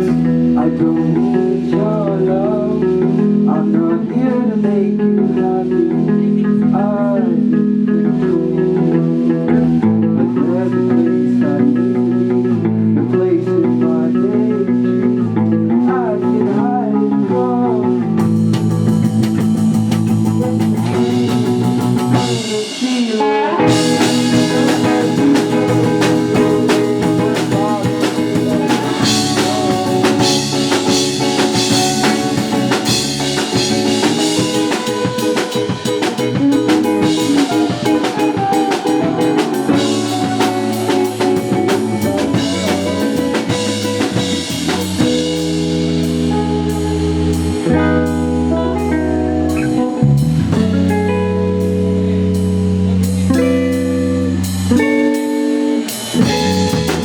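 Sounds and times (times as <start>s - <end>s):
steady drum beat: 18.2s - 23.0s, 23.6s - 47.5s, 50.2s - 51.0s, 56.0s - 57.0s
rock band playing: 18.2s - 57.0s.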